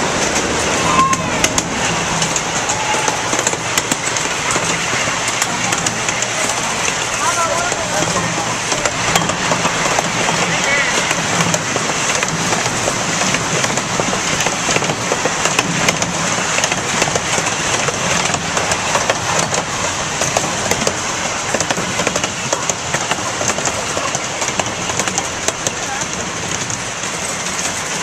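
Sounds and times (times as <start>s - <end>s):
miniature train rattling on track: 0.0s - 28.0s
wheels clicking on rails: 0.0s - 28.0s.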